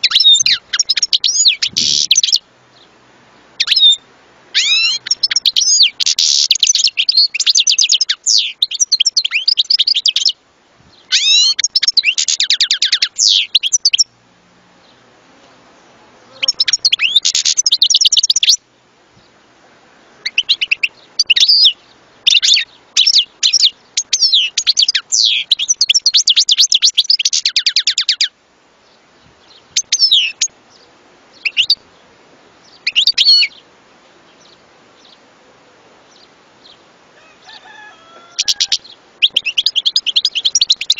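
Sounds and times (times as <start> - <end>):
bird twittering and trilling: 0.0 - 2.9, 3.6 - 4.0, 4.6 - 14.1, 16.2 - 18.6, 20.2 - 31.8, 32.6 - 33.7, 36.1 - 40.9
bird call notes: 14.8 - 18.6, 36.1 - 40.9.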